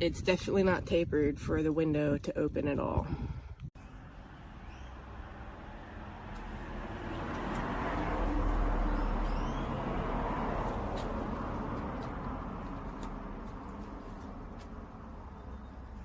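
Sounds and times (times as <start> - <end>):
vehicle passing: 3.8 - 16.0.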